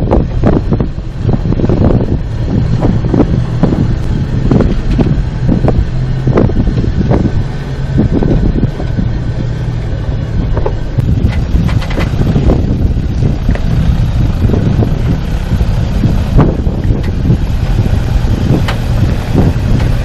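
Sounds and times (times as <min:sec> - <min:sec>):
vehicle engine at low speed: 0:00.0 - 0:20.0
wind buffeting microphone: 0:00.0 - 0:20.0
knocks and thuds over rocks: 0:10.4 - 0:13.7, 0:18.4 - 0:20.0.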